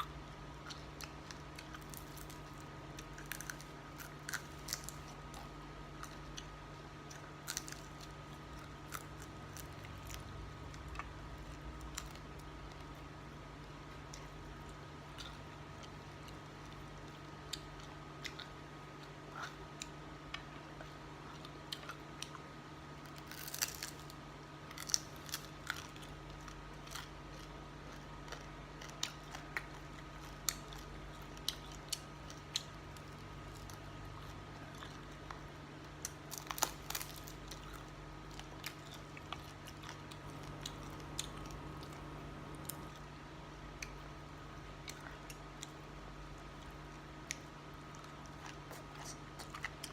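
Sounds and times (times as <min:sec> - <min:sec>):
person chewing: 0:00.0 - 0:49.9
steady low hum: 0:00.0 - 0:49.9
small crunches and clicks: 0:23.0 - 0:43.1.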